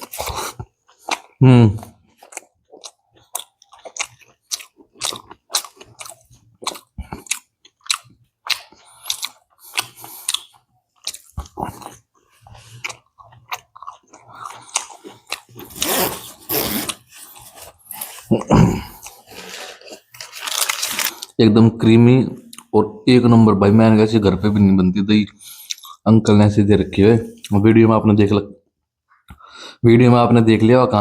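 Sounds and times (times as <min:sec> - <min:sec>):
wet crunchy chewing: 0:00.0 - 0:21.4.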